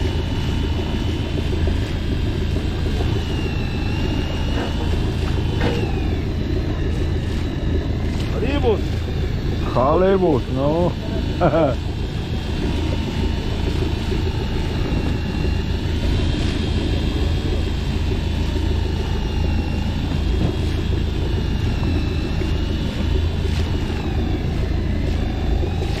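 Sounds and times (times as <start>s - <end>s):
motorboat engine droning: 0.0s - 26.0s.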